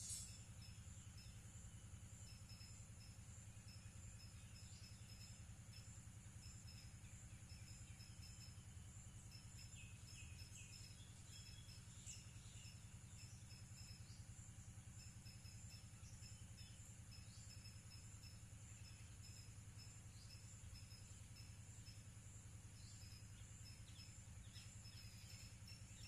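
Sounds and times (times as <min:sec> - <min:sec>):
insect chirps: 0:00.0 - 0:26.0
insects droning: 0:00.0 - 0:26.0
low steady hum: 0:00.0 - 0:26.0.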